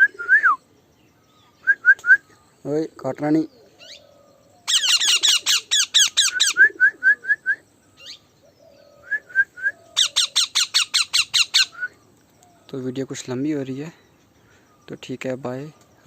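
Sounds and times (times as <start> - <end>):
parrot squawking: 4.6 - 6.6, 10.0 - 11.7
parrot chirps: 4.7 - 6.6, 10.0 - 11.8.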